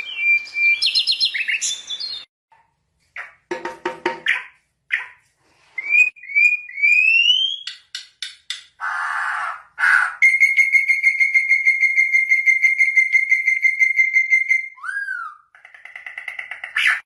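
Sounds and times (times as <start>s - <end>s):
bird singing: 0.0s - 2.3s, 5.8s - 8.0s, 8.8s - 17.0s.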